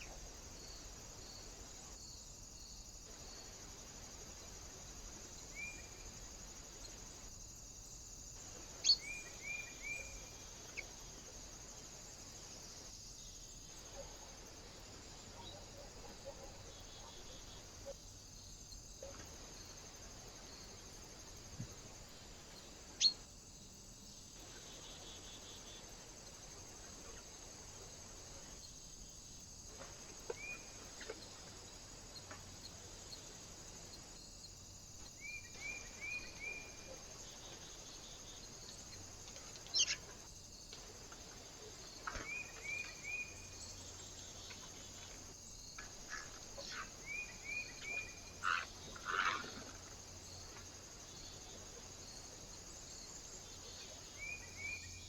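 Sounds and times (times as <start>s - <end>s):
microphone hiss: 0.0s - 15.3s
small birds chirping: 8.8s - 11.0s, 35.0s - 40.2s.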